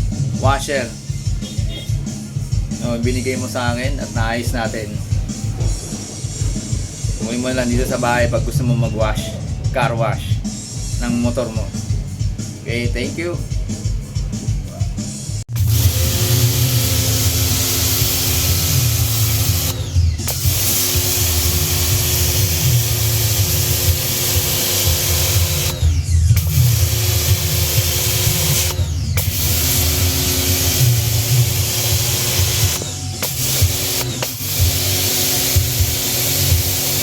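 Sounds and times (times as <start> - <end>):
pressure washer motor hum: 15.5 - 37.0
water spray hissing: 15.5 - 37.0.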